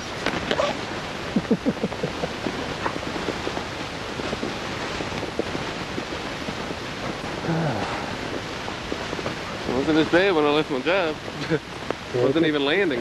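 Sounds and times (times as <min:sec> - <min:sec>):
short crackles: 0:00.0 - 0:13.0
wind blowing across microphone: 0:00.0 - 0:13.0.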